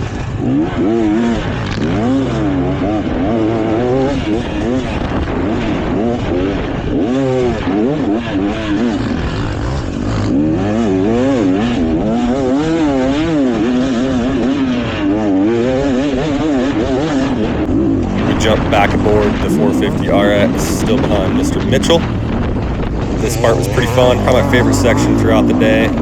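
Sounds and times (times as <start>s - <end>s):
dirt bike engine revving: 17.2s - 26.0s.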